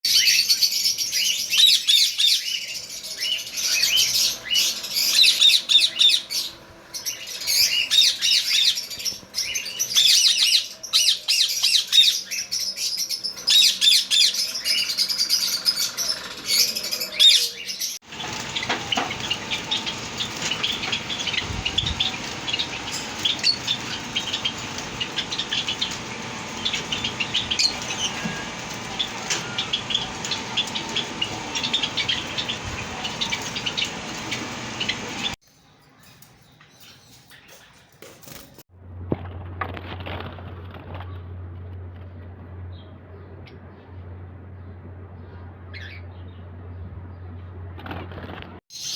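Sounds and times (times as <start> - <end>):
budgerigars chattering: 13.1 - 35.4.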